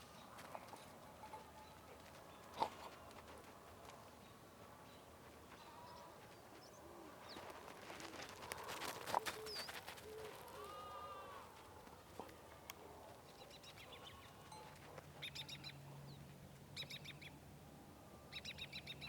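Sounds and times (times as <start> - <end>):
soft cooing calls: 9.2 - 11.5.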